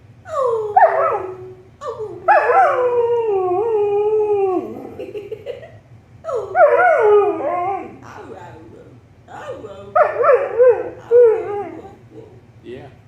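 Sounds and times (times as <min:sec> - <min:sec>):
dog howling: 0:00.3 - 0:05.0, 0:06.3 - 0:08.4, 0:09.4 - 0:12.4.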